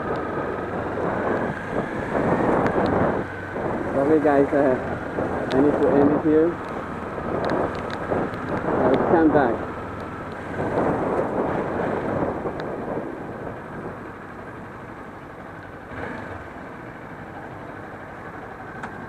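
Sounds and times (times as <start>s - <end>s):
wind rushing: 0.0s - 14.0s
traffic: 0.0s - 19.0s
rain: 9.6s - 17.7s.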